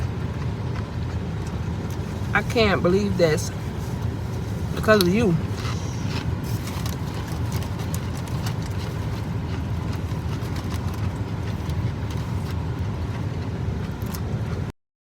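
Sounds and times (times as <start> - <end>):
steady low rumble: 0.0 - 14.7.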